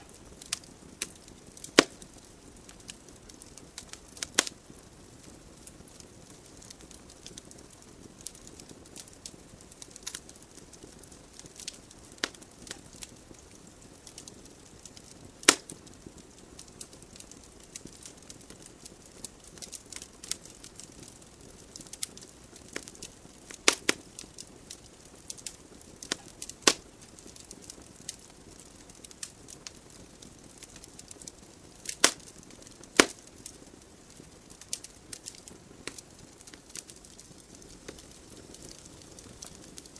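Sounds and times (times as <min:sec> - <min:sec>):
fire hissing and crackling: 0:00.0 - 0:39.9
loud sharp pops from logs: 0:01.6 - 0:02.0, 0:15.4 - 0:15.8, 0:23.7 - 0:24.0, 0:26.0 - 0:26.8, 0:31.8 - 0:32.3, 0:32.9 - 0:33.5.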